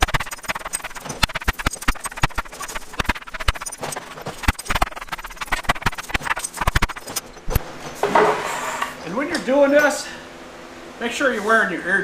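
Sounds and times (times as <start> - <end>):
metal tool beating wooden boards: 0.0 - 7.6.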